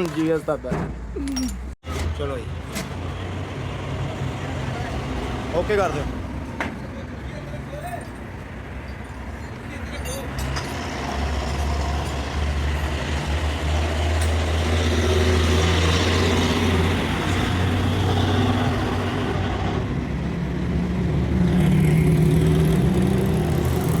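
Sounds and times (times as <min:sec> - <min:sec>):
truck engine revving: 0:10.5 - 0:24.0.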